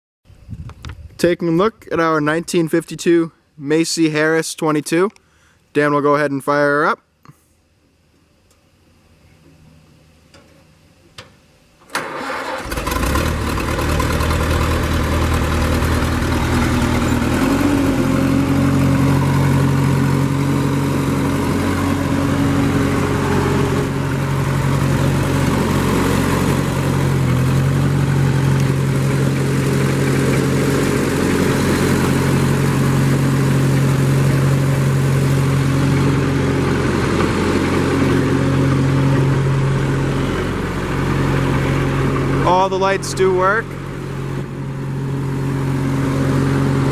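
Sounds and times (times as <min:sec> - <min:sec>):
tractor engine starting and running: 0:09.6 - 0:46.9.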